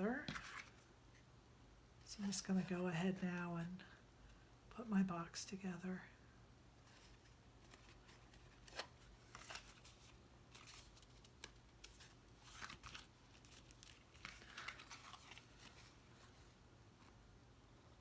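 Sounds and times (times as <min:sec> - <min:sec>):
cardstock rustling and crinkling: 0:00.1 - 0:00.9, 0:06.8 - 0:17.1.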